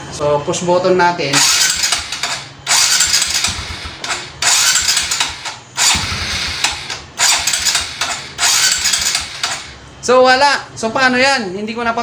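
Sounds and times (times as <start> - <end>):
motorcycle starter cranking: 1.4 - 9.8.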